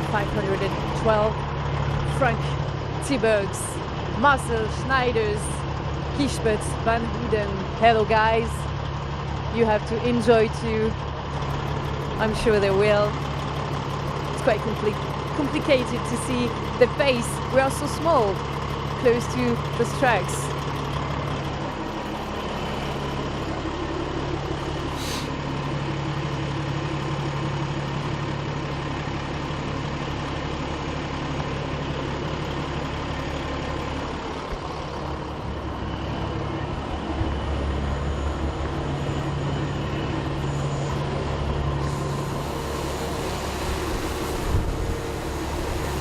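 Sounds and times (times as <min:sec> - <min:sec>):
diesel truck engines rumbling: 0:00.0 - 0:46.0
brief hiss: 0:25.0 - 0:25.4.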